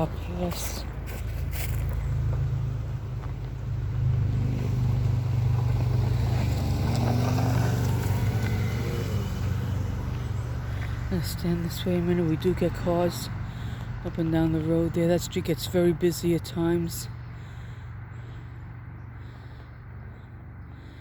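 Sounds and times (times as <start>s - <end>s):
car driving past: 1.4s - 11.1s.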